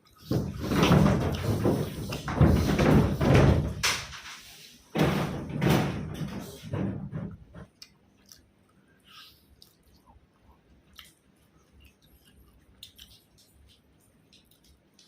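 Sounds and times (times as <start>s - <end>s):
chewing: 7.6s - 15.0s
small clicks and wet smacks: 7.6s - 15.0s.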